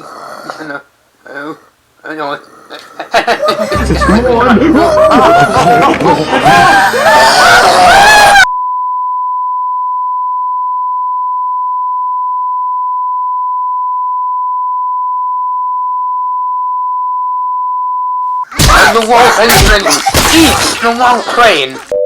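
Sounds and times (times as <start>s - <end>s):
voice: 0.6s - 2.5s, 3.6s - 7.5s, 18.6s - 21.9s
long beep tone: 8.5s - 18.2s.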